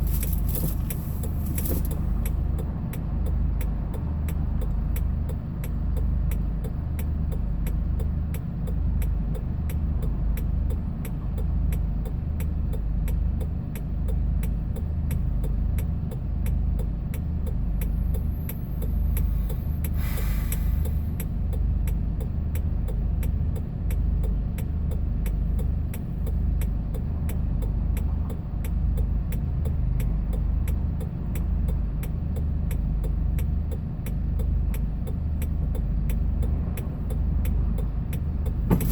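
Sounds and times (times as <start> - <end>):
truck engine and road drone: 0.0 - 38.9
short hiss: 20.0 - 20.9.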